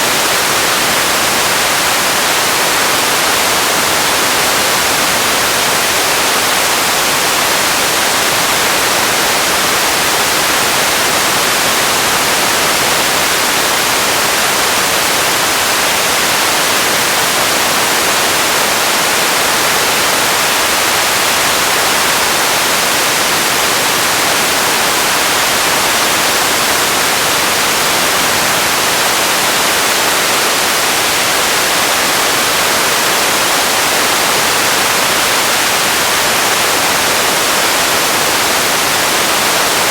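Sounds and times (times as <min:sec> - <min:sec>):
radio static hiss: 0:00.0 - 0:39.9.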